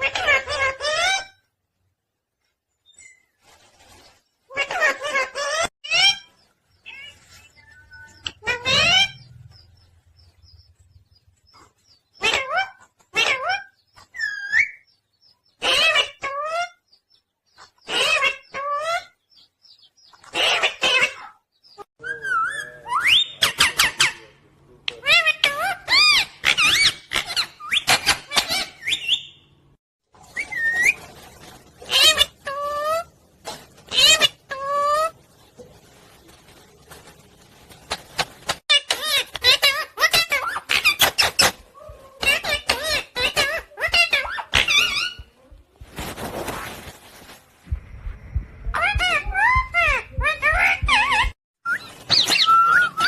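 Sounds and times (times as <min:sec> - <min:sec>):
parrot squawking: 0:00.0 - 0:01.4, 0:04.5 - 0:09.3, 0:15.6 - 0:16.8, 0:17.9 - 0:19.1, 0:20.2 - 0:21.4, 0:25.0 - 0:29.4, 0:31.9 - 0:33.1, 0:33.9 - 0:35.1, 0:38.7 - 0:41.6, 0:42.2 - 0:45.3, 0:48.7 - 0:51.4.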